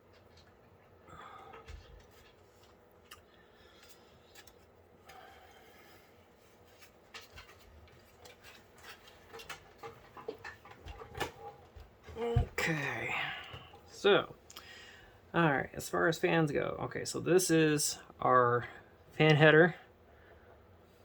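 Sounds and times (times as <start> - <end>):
cables rustling: 6.3 - 12.8.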